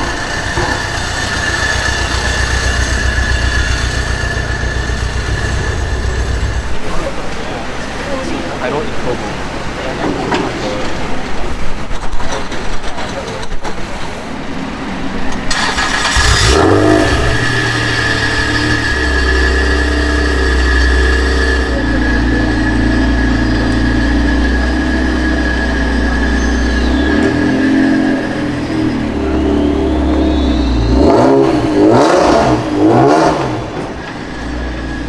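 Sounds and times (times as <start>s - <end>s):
car engine starting and idling: 0.0s - 35.0s.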